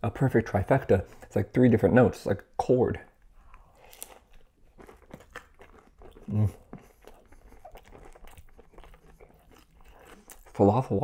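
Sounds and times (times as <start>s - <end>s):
crunchy chewing: 3.4s - 10.7s.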